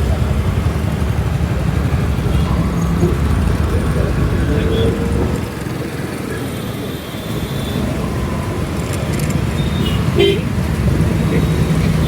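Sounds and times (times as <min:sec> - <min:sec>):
road traffic: 0:00.0 - 0:12.0
wind rumble: 0:00.0 - 0:12.0
vehicle horn toots: 0:04.6 - 0:05.3, 0:09.6 - 0:10.6.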